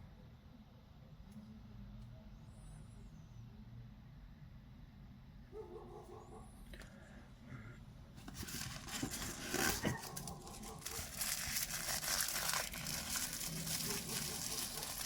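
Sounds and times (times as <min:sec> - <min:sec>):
wrapping crinkling and tearing: 0:08.2 - 0:15.0.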